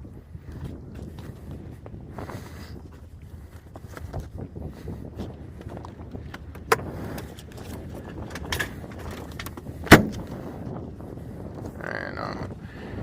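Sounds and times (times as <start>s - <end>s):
wind rumbling on microphone: 0.0s - 13.0s
handling clicks and knocks: 6.3s - 10.3s.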